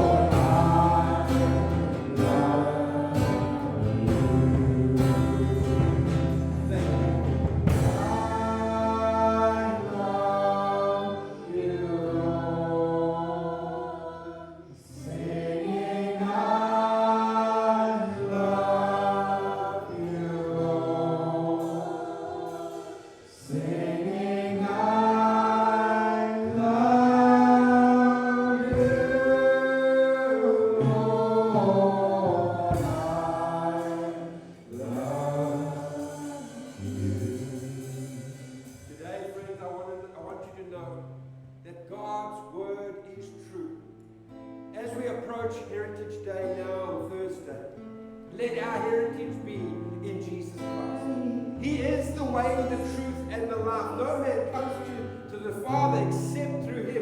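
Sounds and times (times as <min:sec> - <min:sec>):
choral singing: 0:00.0 - 0:39.6.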